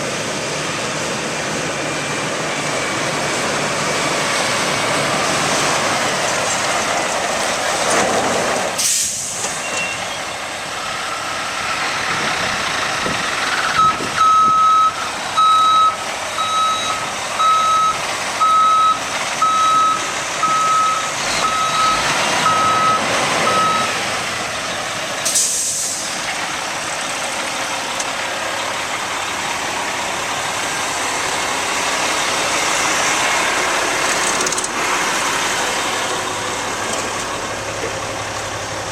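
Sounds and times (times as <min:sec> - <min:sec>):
engine and yard noise: 0:00.0 - 0:38.9
air brake hiss: 0:08.8 - 0:09.7, 0:25.2 - 0:26.2
truck backup alarm beeping: 0:09.0 - 0:10.4, 0:13.4 - 0:26.0.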